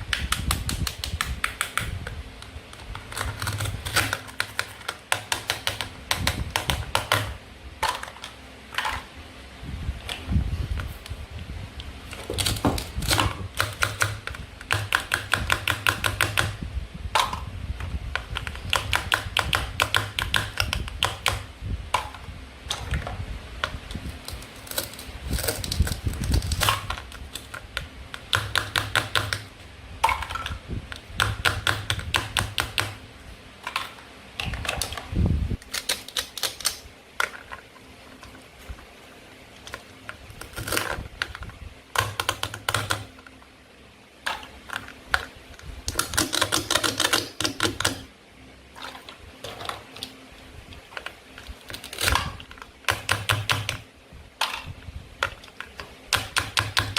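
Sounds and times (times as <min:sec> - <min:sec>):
toy knife cutting toy food: 0:45.9 - 0:48.1.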